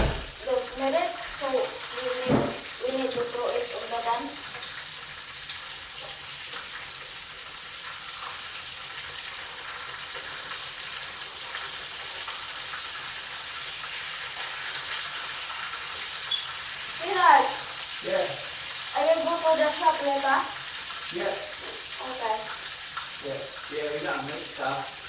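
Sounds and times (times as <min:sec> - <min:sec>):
food sizzling in oil: 0:00.0 - 0:25.0
oil pops and crackles: 0:04.1 - 0:19.1.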